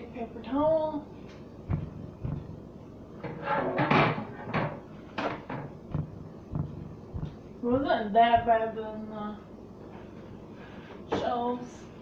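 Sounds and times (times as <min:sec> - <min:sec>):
sharp knocks and clatters: 0:01.7 - 0:02.6, 0:03.8 - 0:07.4.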